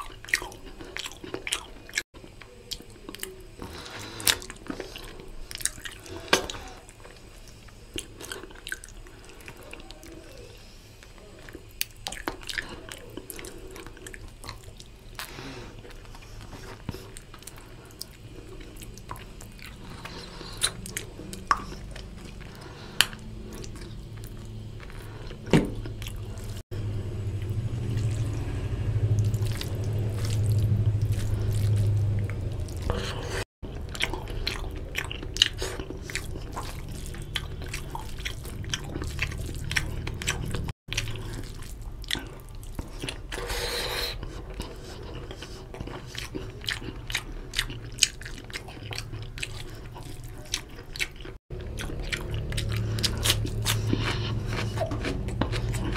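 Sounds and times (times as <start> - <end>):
close chewing: 0.0 - 26.6, 27.3 - 55.9.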